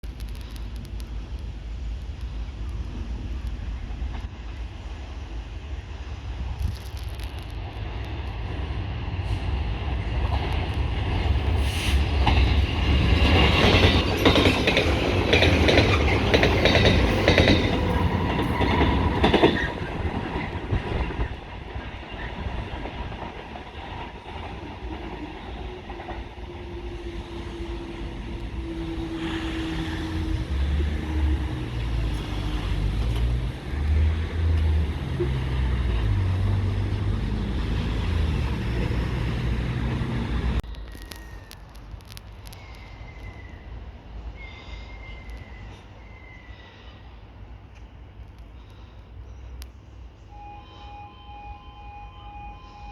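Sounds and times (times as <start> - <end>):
train wheels clattering over joints: 10.2 - 27.4.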